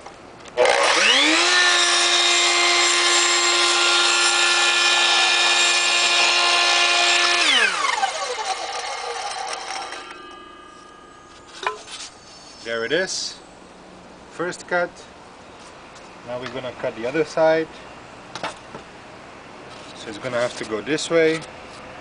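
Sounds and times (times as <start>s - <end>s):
miter saw motor whining: 0.6s - 11.4s.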